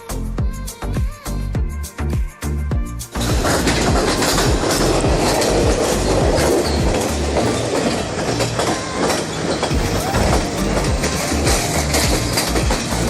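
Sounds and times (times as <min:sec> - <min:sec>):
train rumbling on track: 0:03.1 - 0:13.0
wheels clicking and clattering: 0:03.1 - 0:13.0.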